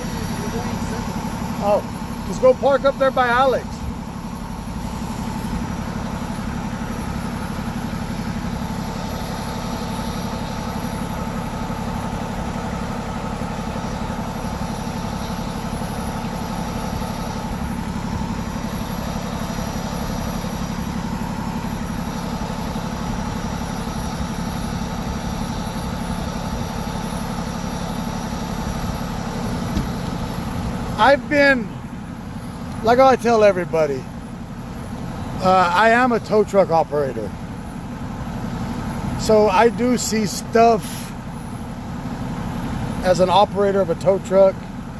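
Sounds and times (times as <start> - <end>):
vehicle engine idling: 0.0 - 44.9.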